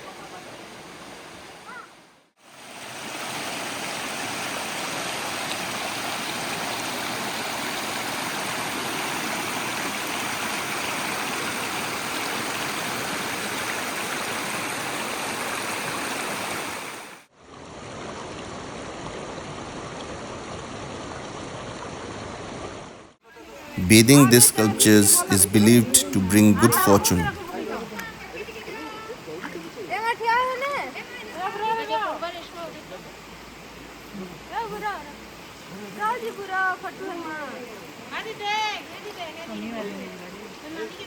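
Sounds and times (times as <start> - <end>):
flowing stream water: 0.0 - 1.6, 2.4 - 17.2.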